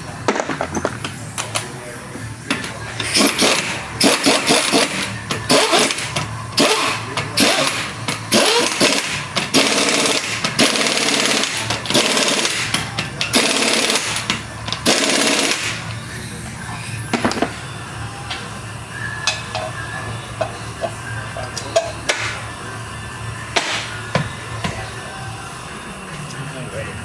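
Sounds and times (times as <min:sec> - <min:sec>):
pneumatic impact wrench bursts: 0:02.5 - 0:15.9.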